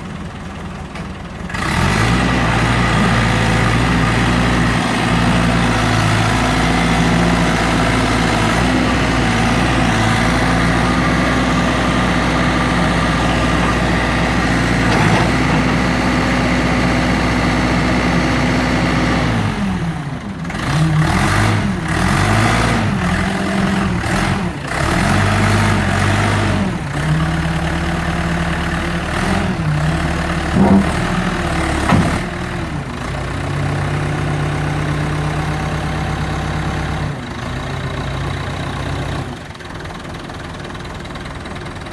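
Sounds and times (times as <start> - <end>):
heavy vehicle engine revving: 1.5 - 39.3.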